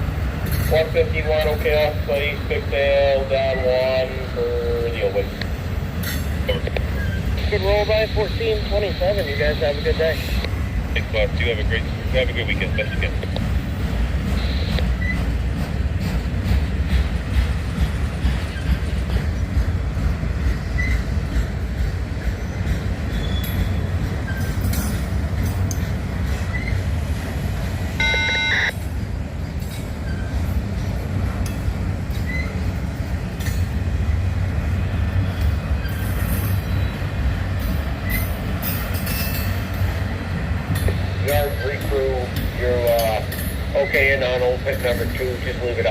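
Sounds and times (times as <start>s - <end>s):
freight train rumbling past: 0.0s - 45.9s
short high tone: 28.0s - 28.7s.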